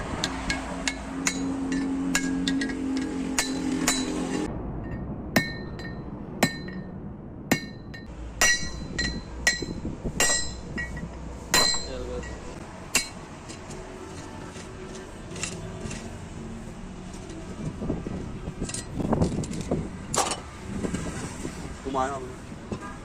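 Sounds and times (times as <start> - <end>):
hammer striking steel: 0.2 - 6.9, 7.5 - 16.1.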